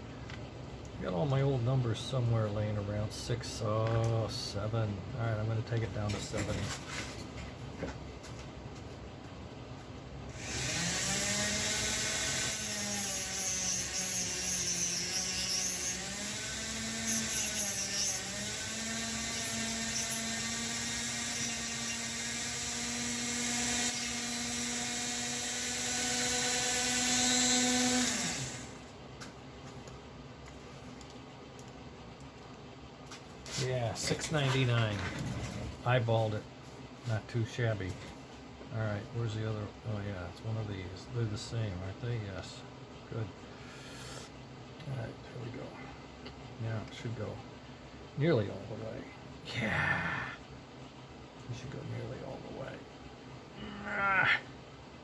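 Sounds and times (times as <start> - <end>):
rotary tool grinding metal: 10.4 - 28.8.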